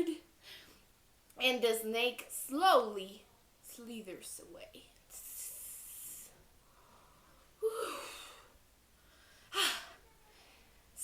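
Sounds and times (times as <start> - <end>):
woman hissing: 7.6 - 8.5, 9.5 - 10.0.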